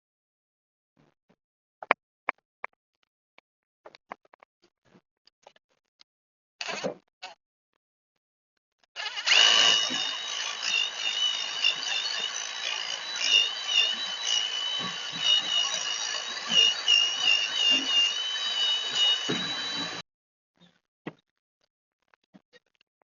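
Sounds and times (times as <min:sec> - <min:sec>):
power tool motor whine: 0:09.0 - 0:20.0.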